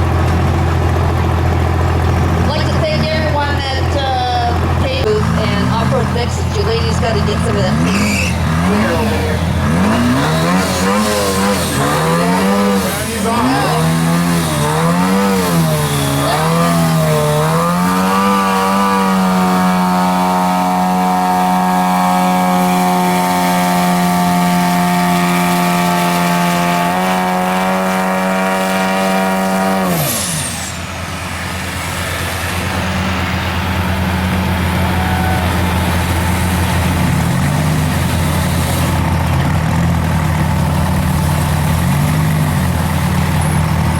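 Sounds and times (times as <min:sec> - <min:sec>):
truck engine revving: 0:00.0 - 0:43.9.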